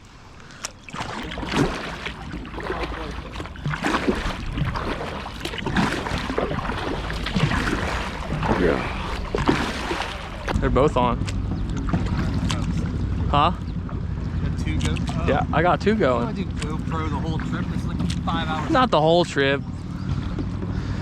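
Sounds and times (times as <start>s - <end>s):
paddle strokes splashing: 0.0s - 10.6s, 11.2s - 13.0s, 16.3s - 18.8s
water sloshing against hull: 0.0s - 21.0s
steady low rumble: 1.0s - 21.0s.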